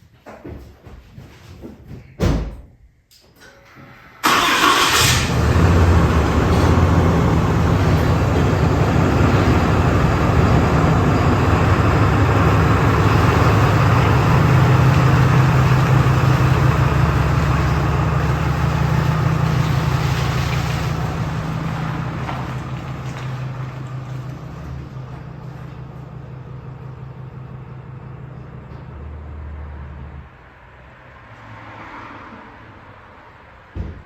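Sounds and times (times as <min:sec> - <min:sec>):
atv engine starting and running: 0:04.2 - 0:28.8.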